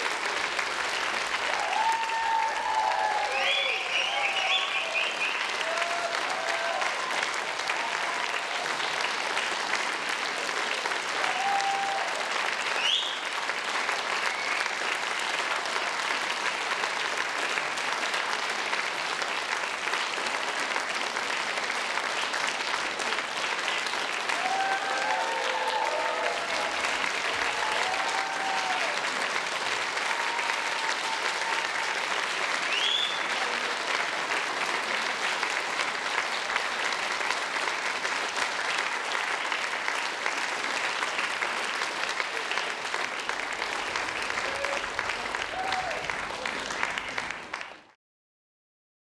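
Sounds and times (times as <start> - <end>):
audience applauding: 0.0 - 48.0
crowd shouts and whoops: 1.5 - 8.7, 11.2 - 12.2, 24.3 - 29.1, 30.0 - 32.0, 44.4 - 46.5.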